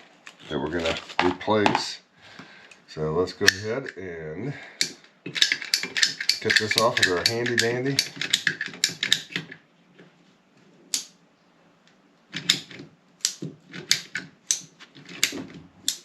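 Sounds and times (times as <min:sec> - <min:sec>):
ratcheting pipe cutter clicking: 0:04.8 - 0:09.5, 0:12.4 - 0:16.0.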